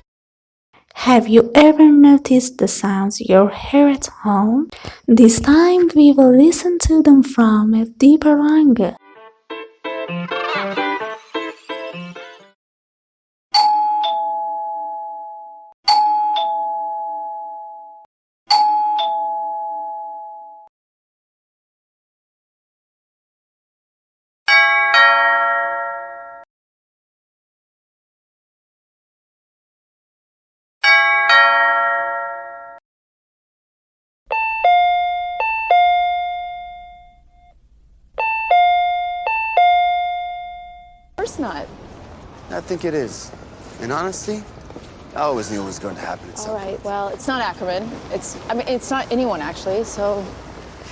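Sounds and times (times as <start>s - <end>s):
two-tone doorbell chime: 13.6s - 20.7s, 24.5s - 26.5s, 30.8s - 32.8s, 34.3s - 37.6s, 38.2s - 41.2s.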